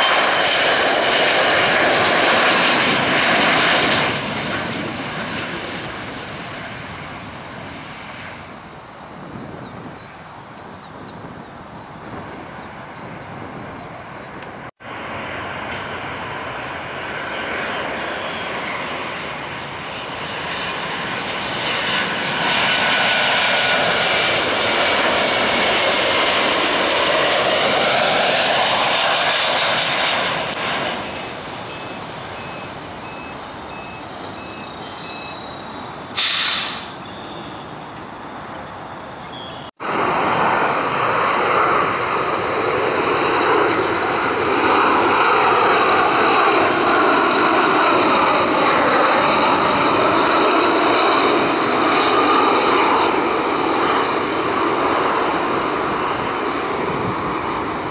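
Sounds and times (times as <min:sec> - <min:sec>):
jet airliner engines passing: 0:00.0 - 0:57.9
short burst of noise: 0:34.7 - 0:37.8.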